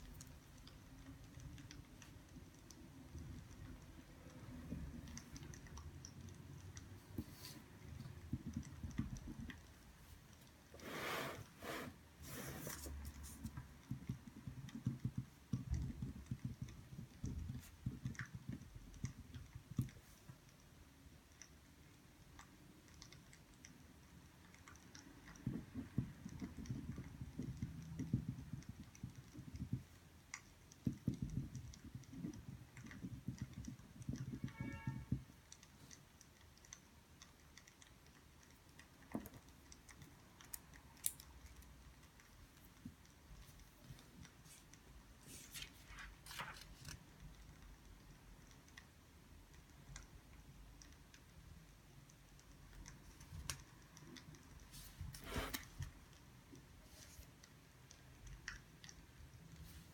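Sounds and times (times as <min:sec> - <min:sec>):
pen and paper handling: 0:45.3 - 0:47.0.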